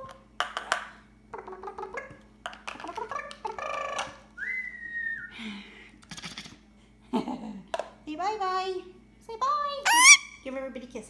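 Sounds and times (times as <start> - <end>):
parrot chattering: 9.9 - 10.4
parrot whistle: 9.9 - 10.4.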